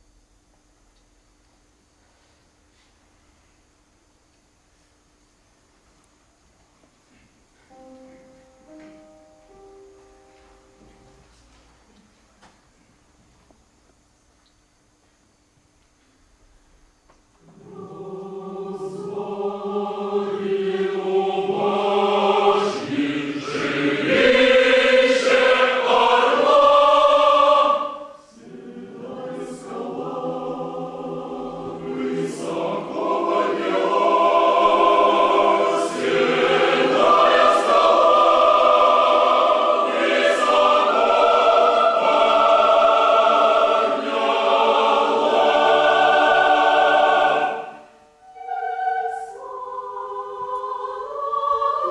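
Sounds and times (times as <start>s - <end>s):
choir singing: 17.4s - 51.9s.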